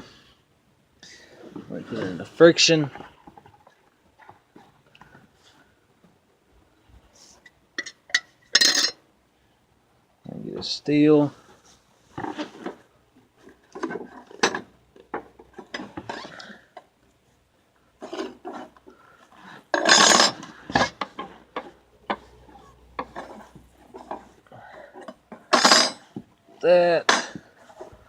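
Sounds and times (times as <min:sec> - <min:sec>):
metal plates clinking and scraping: 0:07.8 - 0:09.0, 0:19.7 - 0:24.4, 0:25.0 - 0:26.1, 0:27.1 - 0:27.9.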